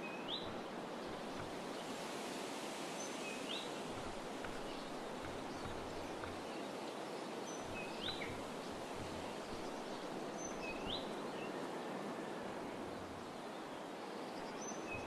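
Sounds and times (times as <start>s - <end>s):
outdoor background hiss: 0.0s - 15.0s
small bird calling: 7.5s - 11.6s.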